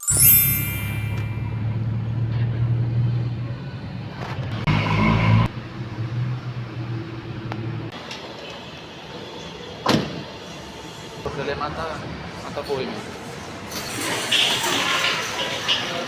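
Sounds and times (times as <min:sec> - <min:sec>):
car engine humming: 0:00.3 - 0:07.9.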